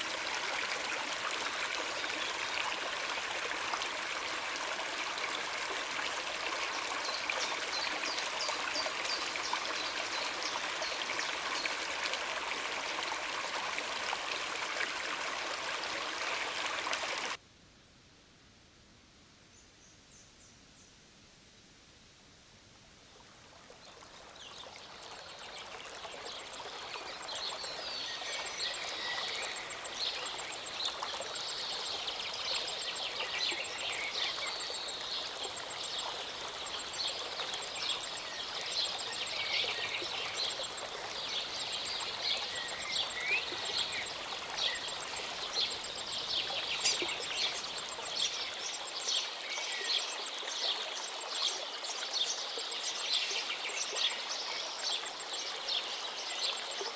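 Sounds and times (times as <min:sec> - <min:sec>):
stream running: 0:00.0 - 0:17.4, 0:22.9 - 0:56.9.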